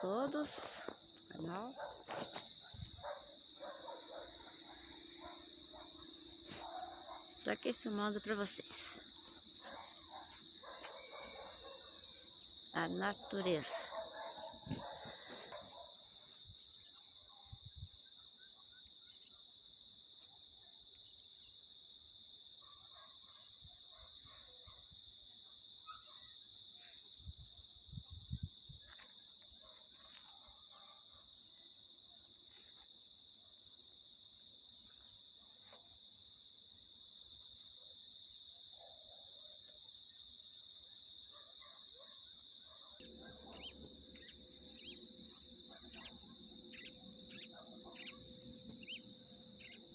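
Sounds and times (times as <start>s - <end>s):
high-pitched insect trill: 0.0s - 30.6s, 31.2s - 49.9s.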